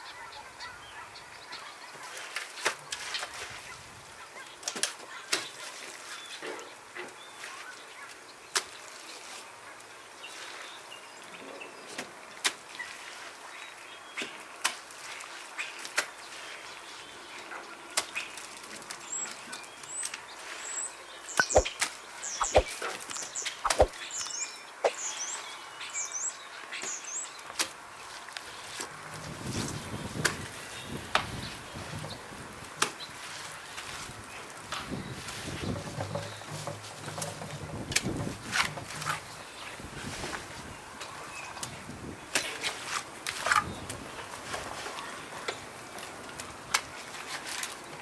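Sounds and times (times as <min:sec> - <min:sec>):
sharp clicks: 0:21.4 - 0:21.7
small bird chirping: 0:21.4 - 0:21.7, 0:22.3 - 0:25.4.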